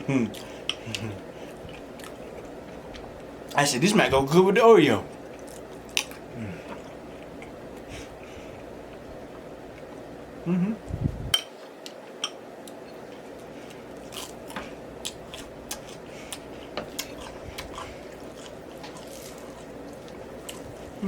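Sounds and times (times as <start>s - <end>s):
low room hum: 0.0s - 21.0s
person chewing food: 0.3s - 3.6s, 5.1s - 10.1s, 12.6s - 21.0s.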